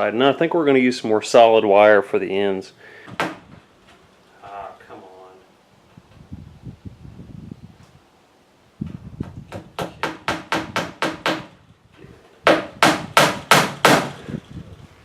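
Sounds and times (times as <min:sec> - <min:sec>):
hammer driving nails into wood: 0:03.1 - 0:03.4, 0:09.2 - 0:11.6, 0:12.4 - 0:14.2.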